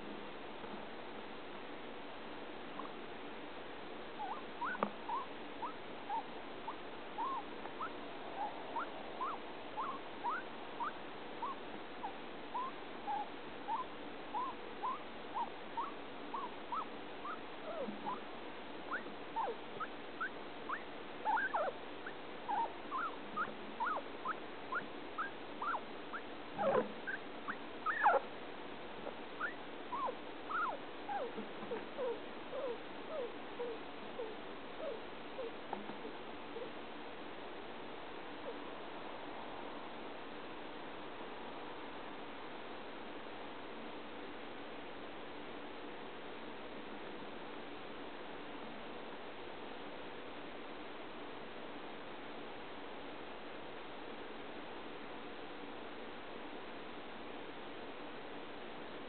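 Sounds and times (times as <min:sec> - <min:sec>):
guinea pig squeaking: 0:04.2 - 0:18.2, 0:18.9 - 0:28.3, 0:29.4 - 0:35.8.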